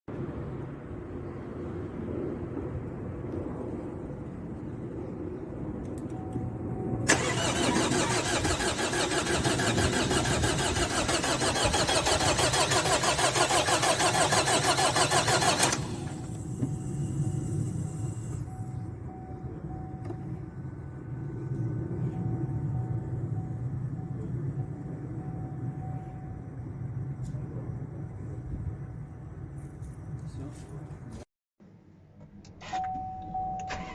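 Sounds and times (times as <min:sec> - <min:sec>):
engine starter cranking: 0:07.1 - 0:16.5
car engine idling: 0:07.1 - 0:18.4.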